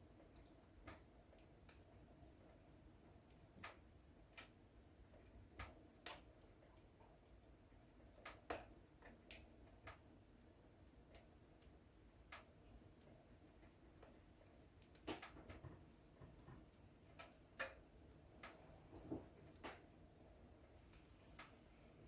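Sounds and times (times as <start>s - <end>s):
faint low hiss: 0.0s - 22.0s
wood fire crackling: 0.2s - 22.0s.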